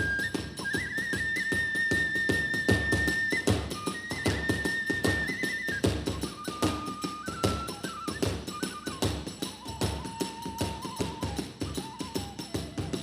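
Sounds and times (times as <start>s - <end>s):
small hand cymbals clashing: 0.0s - 12.7s
bamboo flute long notes: 0.0s - 13.0s.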